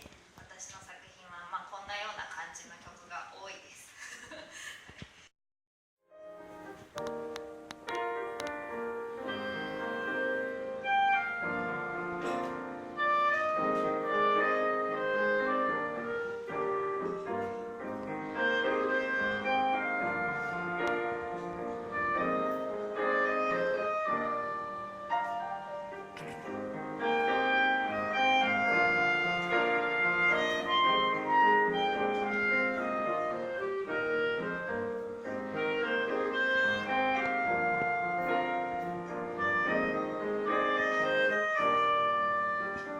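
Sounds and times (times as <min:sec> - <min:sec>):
clarinet melody: 0:06.1 - 0:42.9
piano chords: 0:06.1 - 0:42.9.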